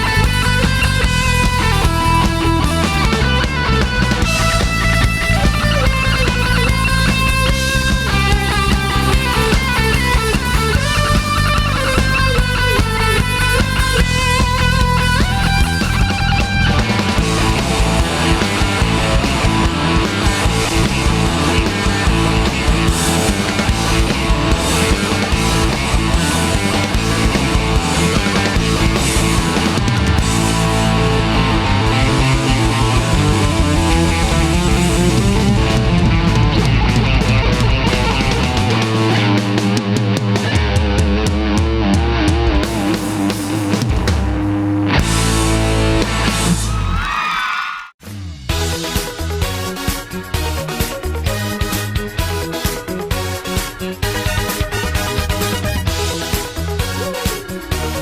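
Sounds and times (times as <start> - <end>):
electric guitar melody: 0.0 - 43.7
rock band playing: 0.0 - 47.9, 48.6 - 58.0.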